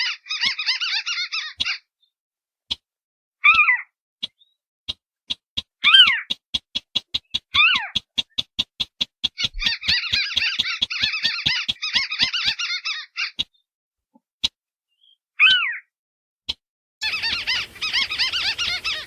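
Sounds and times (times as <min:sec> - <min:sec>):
fast sharp ticks: 0:04.2 - 0:12.6
bird chattering: 0:05.3 - 0:13.6, 0:17.0 - 0:19.0
downward-sliding bird call: 0:07.0 - 0:13.4.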